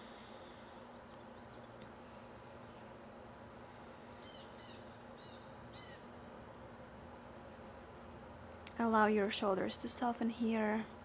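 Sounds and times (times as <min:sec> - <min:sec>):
low background hum: 0:00.0 - 0:11.0
bird chirping: 0:04.2 - 0:06.1.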